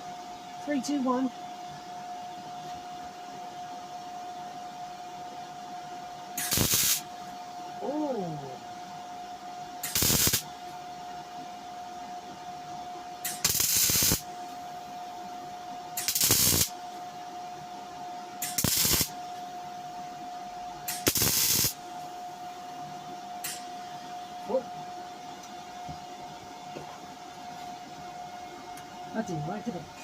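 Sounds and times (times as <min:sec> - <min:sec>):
steady whine: 0:00.0 - 0:30.0
welding arc hiss and crackle: 0:06.3 - 0:07.3, 0:09.8 - 0:10.8, 0:13.2 - 0:14.8, 0:15.9 - 0:17.0, 0:18.4 - 0:19.4, 0:20.8 - 0:22.3, 0:23.4 - 0:24.0.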